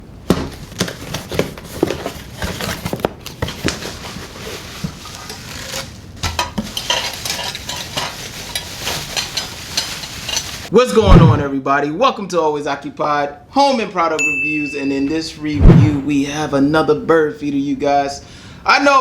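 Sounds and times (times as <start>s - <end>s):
steady rustling hiss: 0.0s - 10.8s, 14.8s - 18.8s.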